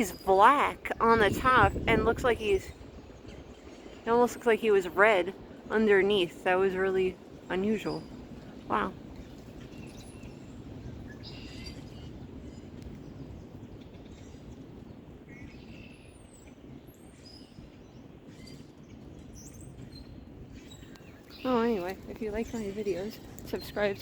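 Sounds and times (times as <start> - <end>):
birds chirping: 0.0 - 24.0
outdoor background rush: 0.0 - 24.0.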